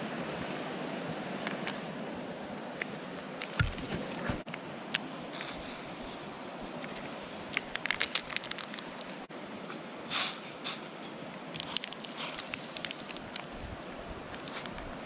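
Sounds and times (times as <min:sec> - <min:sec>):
campfire crackling: 0:05.3 - 0:09.3, 0:10.1 - 0:14.9.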